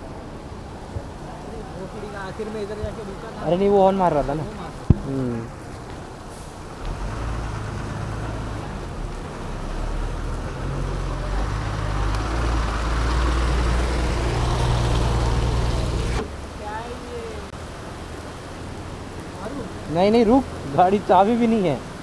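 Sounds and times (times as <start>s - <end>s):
traffic hiss: 0.0s - 22.0s
vehicle engine running: 6.6s - 16.2s.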